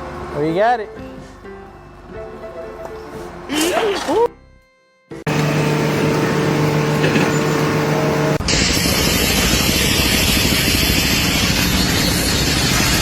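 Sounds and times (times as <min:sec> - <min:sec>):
steady machine hum: 0:05.1 - 0:13.0.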